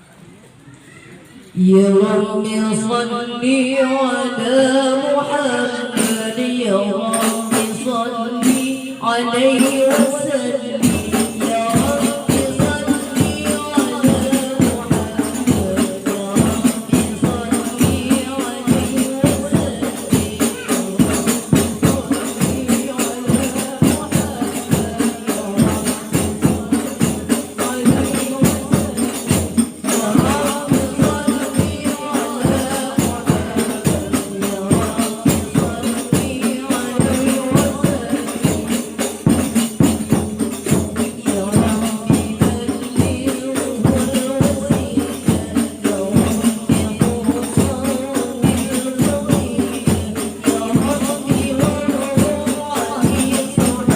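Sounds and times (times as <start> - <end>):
group of women singing: 1.6 - 53.9
frame drums and tambourine jingles: 5.9 - 53.9.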